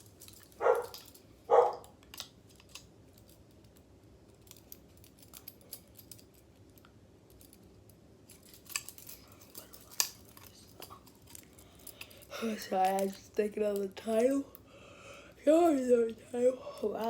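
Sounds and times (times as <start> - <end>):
light metallic clicks and clinks: 2.0 - 14.6.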